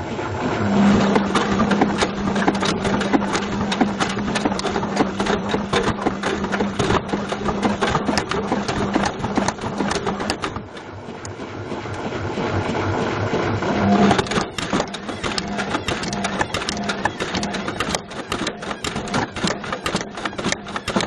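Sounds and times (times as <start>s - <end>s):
washing machine motor hum: 0.0s - 21.0s
object knocking inside washing machine: 0.9s - 10.8s, 14.1s - 21.0s.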